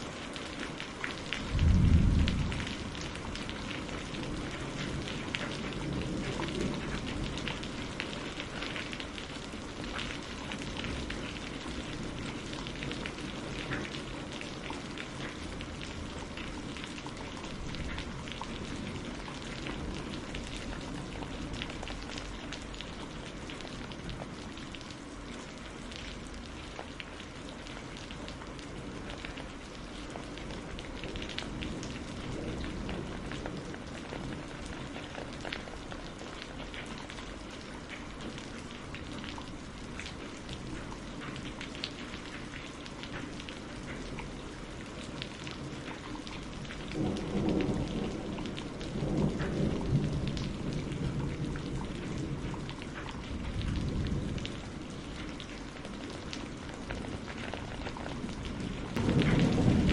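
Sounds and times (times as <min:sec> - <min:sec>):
rain on a greenhouse roof: 0:00.0 - 0:59.9
thunder rumble: 0:01.4 - 0:09.1, 0:56.6 - 0:59.9.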